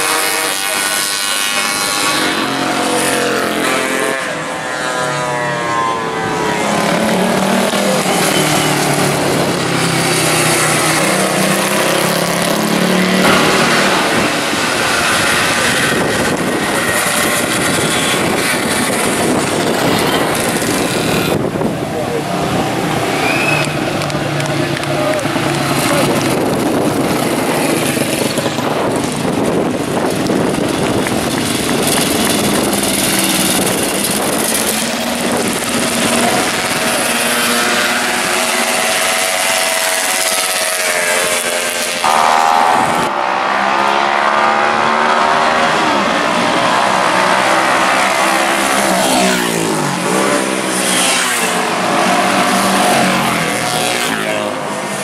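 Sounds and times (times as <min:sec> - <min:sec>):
racing motorcycle engines revving: 0:00.0 - 0:55.0
wind noise: 0:09.0 - 0:39.8.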